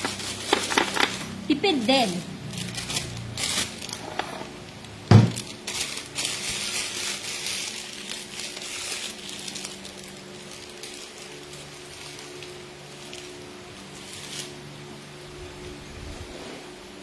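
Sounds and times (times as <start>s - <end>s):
crinkling and rustling handling: 0.0s - 15.0s
dull thump: 5.1s - 5.4s.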